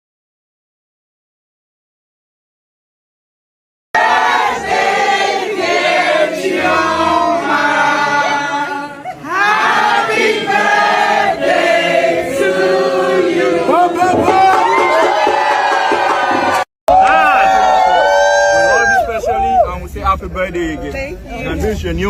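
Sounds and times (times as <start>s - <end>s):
group of people singing: 4.0s - 14.5s.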